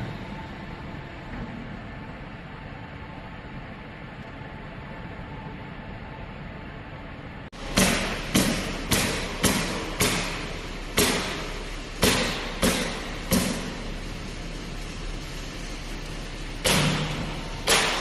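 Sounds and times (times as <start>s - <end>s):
forging press thuds with hiss: 7.6s - 14.8s, 16.5s - 18.0s.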